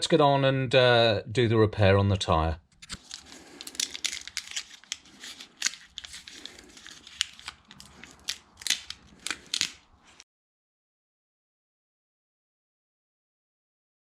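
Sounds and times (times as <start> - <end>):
packaging rustling: 2.8 - 10.2.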